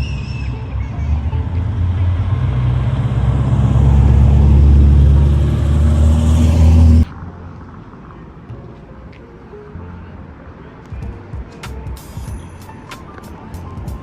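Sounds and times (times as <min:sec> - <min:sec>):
car engine running loudly: 0:00.0 - 0:07.1.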